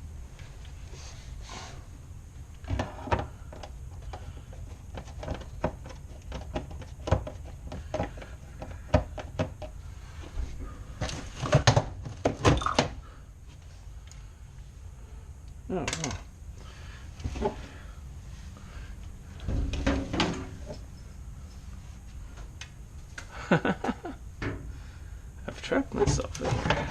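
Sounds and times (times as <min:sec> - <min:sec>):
loud thumps: 0:19.4 - 0:20.9.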